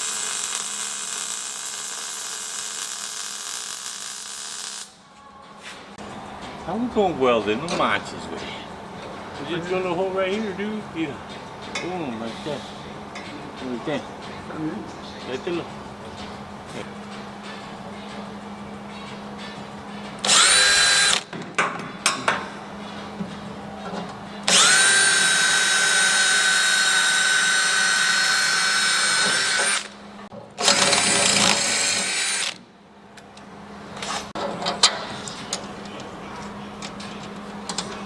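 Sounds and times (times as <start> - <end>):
electric drill whining: 20.2 - 21.3, 24.5 - 30.0, 30.6 - 32.6.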